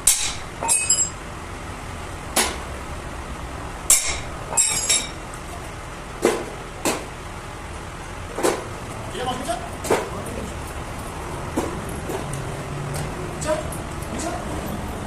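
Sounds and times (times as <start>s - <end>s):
metal tools clinking on metal: 0.1s - 1.2s, 3.9s - 5.2s.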